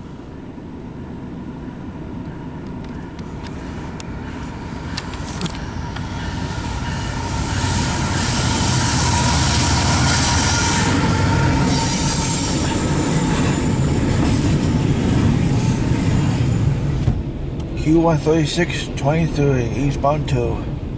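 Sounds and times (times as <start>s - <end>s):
freight train rumble: 0.0s - 20.9s.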